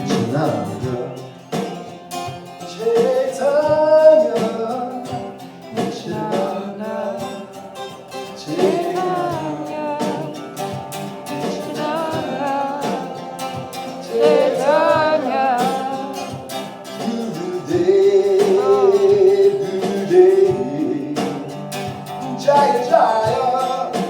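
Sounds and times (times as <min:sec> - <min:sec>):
acoustic guitar strumming: 0:00.0 - 0:24.0
person singing: 0:05.8 - 0:07.6, 0:08.2 - 0:24.0.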